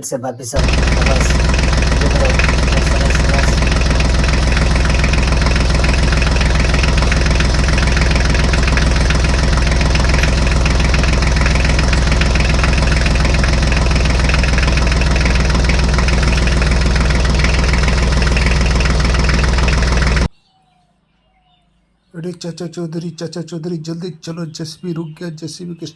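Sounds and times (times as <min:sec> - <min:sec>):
diesel engine idling: 0:00.6 - 0:20.3.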